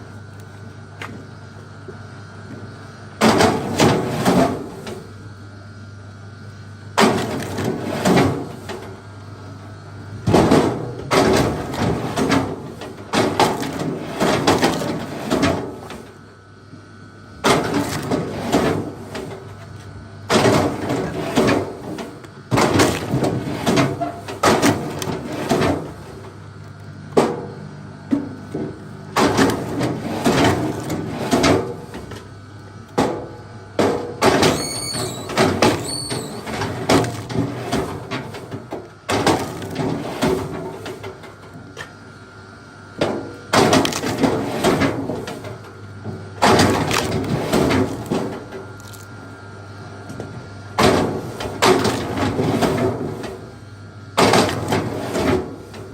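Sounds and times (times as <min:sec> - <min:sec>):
steady low hum: 0:00.0 - 0:55.9
high squeak: 0:34.5 - 0:36.4
wood cracking and splintering: 0:43.6 - 0:44.4, 0:46.4 - 0:49.1.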